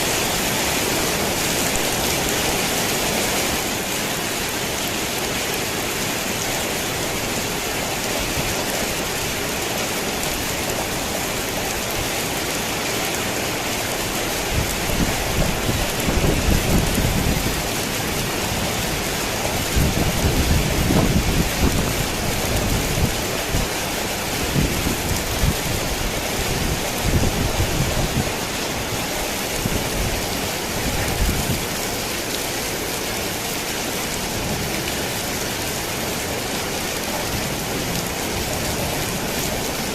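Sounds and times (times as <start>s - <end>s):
rain on a tin roof: 0.0s - 39.9s
thunder rumbling: 14.5s - 23.8s.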